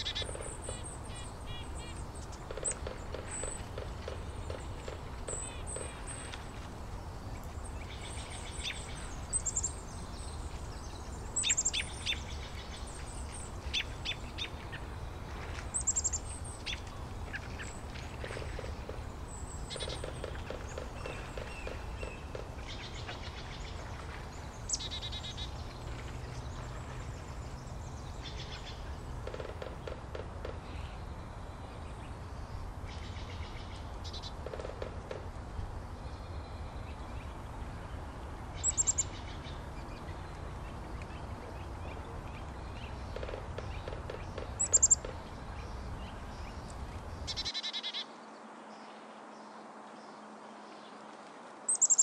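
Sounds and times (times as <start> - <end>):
rapid pulsed bird calls: 0.0 - 29.9, 42.7 - 48.1, 51.7 - 52.0
small birds chirping: 0.0 - 29.9, 38.6 - 48.1, 51.7 - 52.0.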